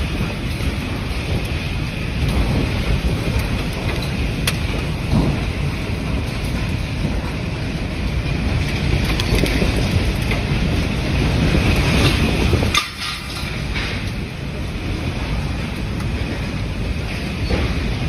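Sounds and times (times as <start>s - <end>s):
debris or rain ticks: 0.0s - 17.6s
wind buffeting microphone: 0.0s - 18.0s.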